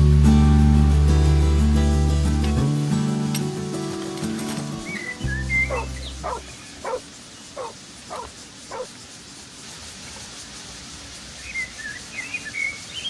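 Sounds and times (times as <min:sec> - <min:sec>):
acoustic guitar music: 0:00.0 - 0:07.0
faint outdoor ambience: 0:00.0 - 0:13.0
high bird chirp: 0:04.8 - 0:08.9, 0:11.4 - 0:13.0
animal short calls: 0:05.7 - 0:07.0, 0:07.6 - 0:08.9.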